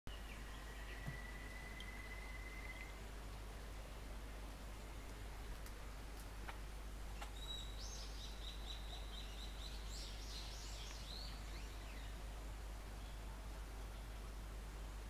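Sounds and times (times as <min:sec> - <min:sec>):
songbird singing: 0:00.1 - 0:05.8, 0:06.4 - 0:14.4
faint clicks: 0:05.0 - 0:06.6.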